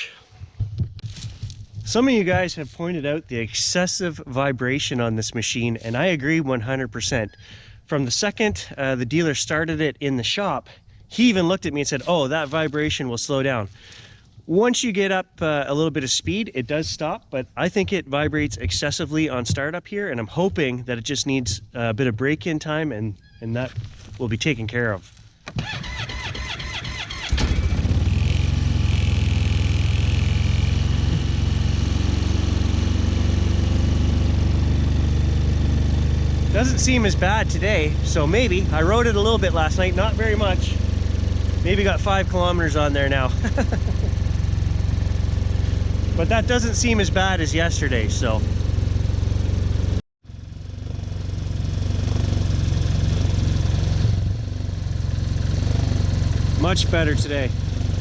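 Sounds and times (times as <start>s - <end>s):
snowmobile engine idling: 1.1s - 19.6s, 23.9s - 58.0s
starter cranking: 25.3s - 35.2s.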